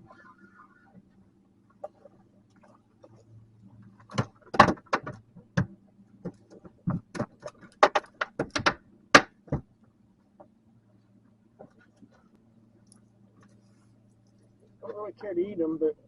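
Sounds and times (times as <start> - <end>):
faint low hum: 0.0 - 16.0
knocks and rattles on a boat: 1.8 - 9.8.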